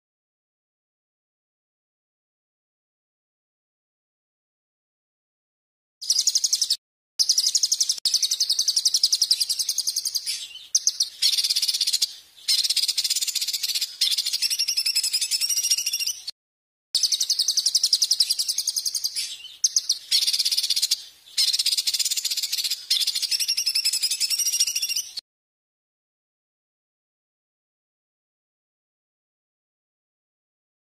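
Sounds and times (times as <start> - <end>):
songbird high-pitched trilling: 6.0 - 16.3, 17.0 - 25.2.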